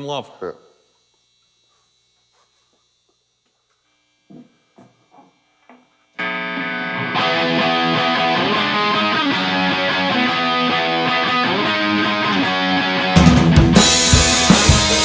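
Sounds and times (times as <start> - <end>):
live rock band playing: 7.1 - 15.0.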